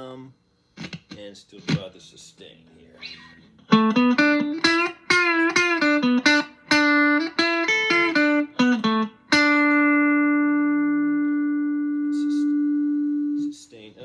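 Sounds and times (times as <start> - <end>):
electric guitar notes: 3.0 - 13.5.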